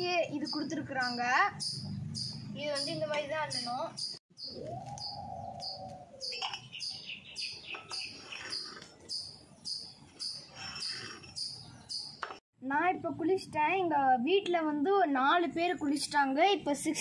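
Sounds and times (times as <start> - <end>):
bird chirping high notes: 0.4 - 12.2.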